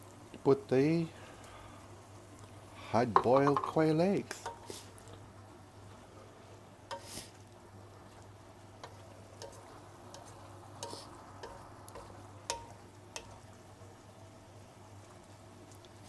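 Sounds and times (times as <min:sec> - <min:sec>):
faint sizzle: 0:00.0 - 0:16.0
utensil stirring food in a pan: 0:00.0 - 0:16.0
utensil tapping against pan: 0:03.2 - 0:03.8, 0:04.4 - 0:04.7, 0:08.8 - 0:13.4.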